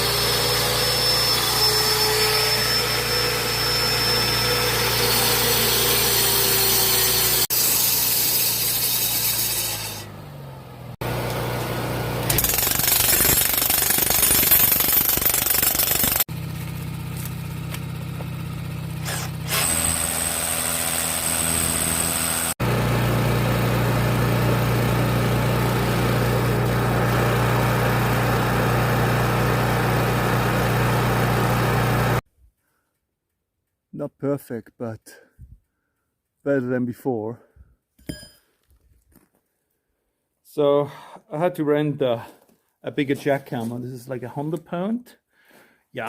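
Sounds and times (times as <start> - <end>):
jackhammer breaking rock: 12.2 - 16.3.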